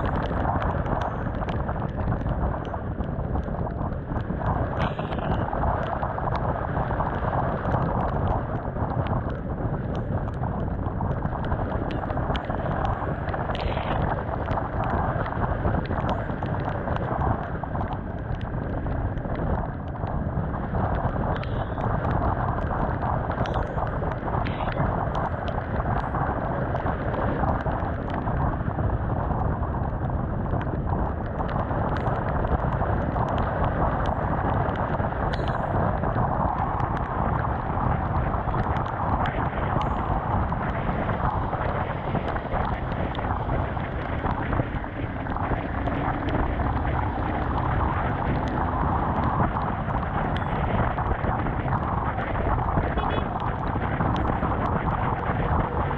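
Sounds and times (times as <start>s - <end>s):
motorcycle road noise: 0.0s - 55.9s
wind rush: 0.0s - 55.9s
small sharp ticks: 20.8s - 28.2s, 30.6s - 50.9s.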